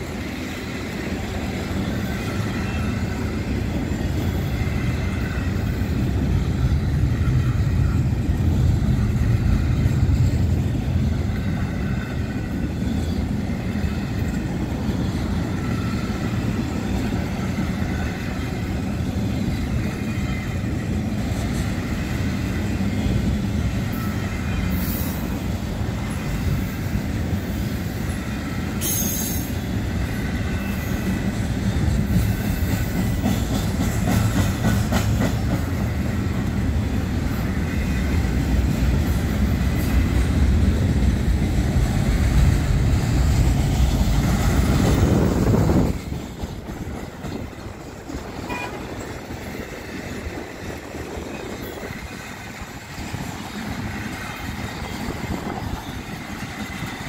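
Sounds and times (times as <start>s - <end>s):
rumble of wheels on rail: 0.0s - 57.0s
high wheel squeal: 1.7s - 8.2s.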